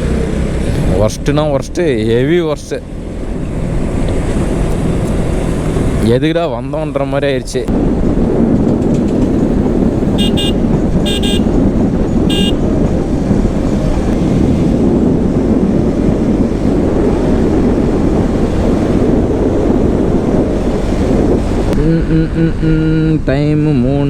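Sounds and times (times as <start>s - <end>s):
wind and road noise: 0.0s - 24.0s
vehicle horn honking: 10.1s - 12.7s.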